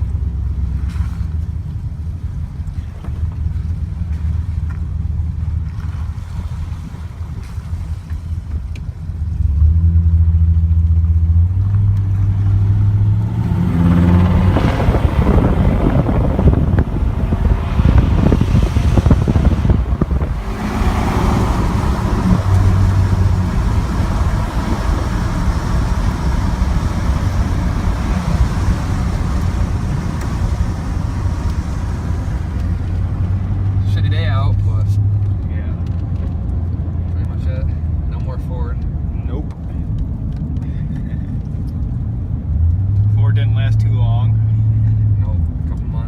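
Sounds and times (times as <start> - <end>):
pickup truck engine accelerating: 0.0 - 46.0
wind and road noise: 0.0 - 46.0.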